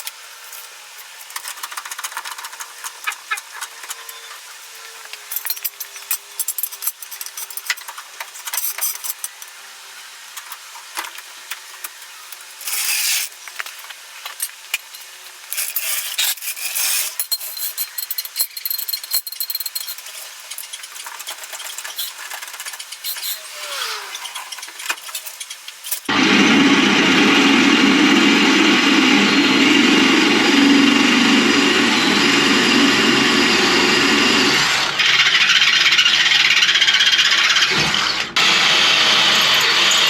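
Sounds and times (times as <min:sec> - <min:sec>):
power tool bursts: 0:23.1 - 0:25.3, 0:25.9 - 0:40.0
loud steady machine noise: 0:26.0 - 0:40.0.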